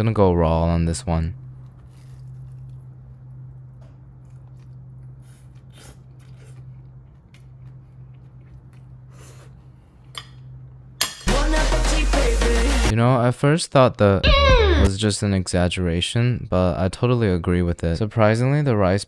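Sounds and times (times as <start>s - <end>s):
steady low hum: 0.0s - 11.0s
crunching and chewing dumpling: 1.4s - 10.1s.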